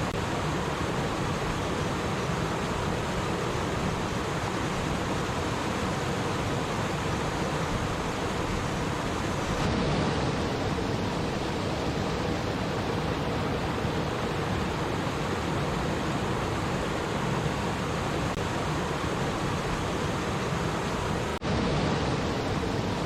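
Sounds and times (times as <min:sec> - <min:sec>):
stream water babbling: 0:00.0 - 0:23.0.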